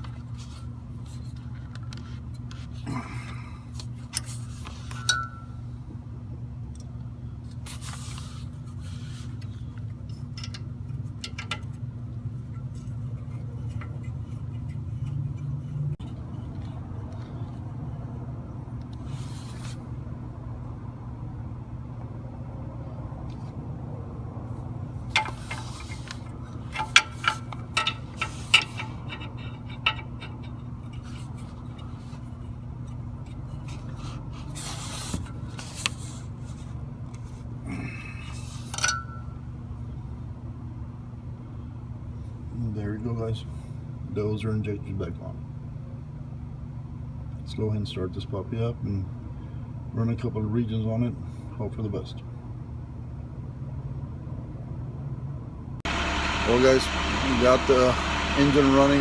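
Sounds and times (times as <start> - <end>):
steady low hum: 0.0 - 59.0
metal tools clinking and scraping: 4.2 - 5.6, 25.1 - 32.2.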